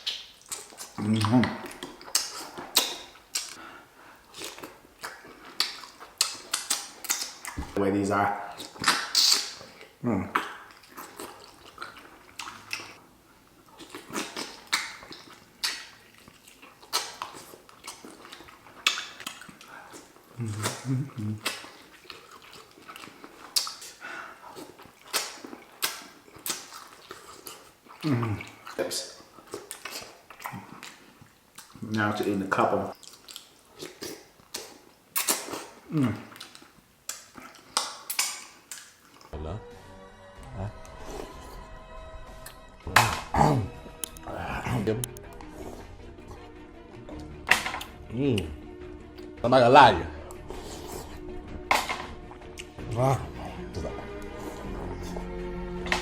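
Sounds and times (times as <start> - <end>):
wet chewing and slurping: 0.0 - 39.4, 42.4 - 49.4, 50.1 - 56.0
person humming mm: 20.4 - 21.5.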